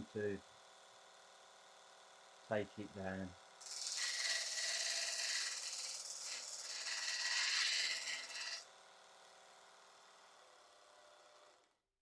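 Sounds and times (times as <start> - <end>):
belt sander grinding metal: 3.6 - 8.6
small motor running: 3.6 - 8.7.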